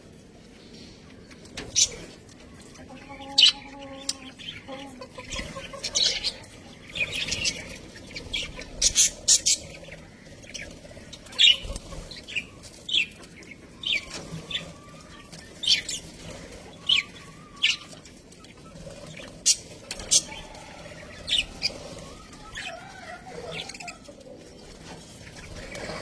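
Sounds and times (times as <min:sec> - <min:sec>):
budgerigars chirping: 0:02.9 - 0:22.8.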